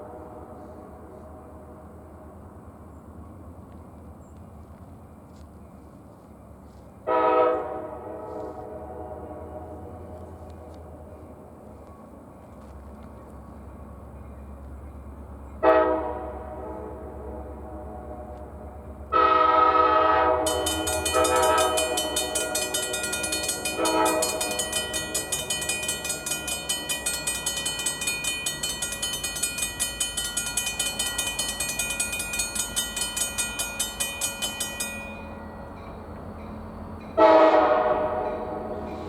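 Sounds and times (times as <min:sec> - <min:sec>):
locomotive air horn blasts: 0:07.1 - 0:10.2, 0:15.6 - 0:22.8, 0:23.6 - 0:24.6, 0:37.2 - 0:39.0
crossing bell ringing rapidly: 0:20.4 - 0:36.6.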